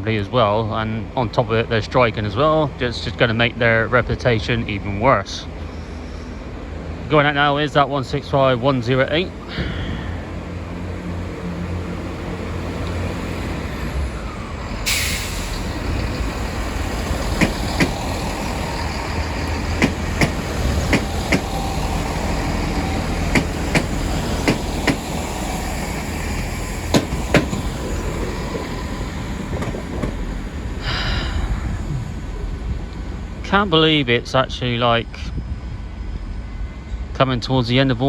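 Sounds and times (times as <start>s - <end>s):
train engine rumble: 0.0s - 38.0s
air hiss: 14.7s - 33.6s
wheel clicks over track joints: 16.7s - 21.7s, 23.2s - 25.2s, 26.9s - 28.7s.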